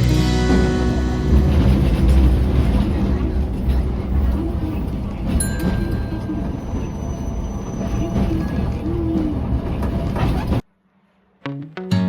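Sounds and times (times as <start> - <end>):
steady low rumbling: 0.0 - 10.6.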